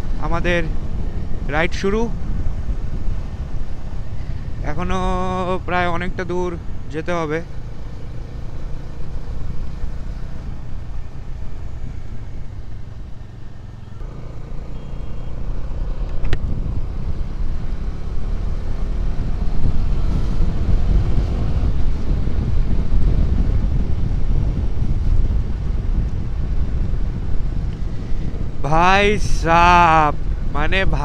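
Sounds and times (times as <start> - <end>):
wind rumbling on microphone: 0.0 - 14.1, 14.8 - 31.0
motorcycle engine and road noise: 0.0 - 31.0
sharp click: 16.0 - 16.4.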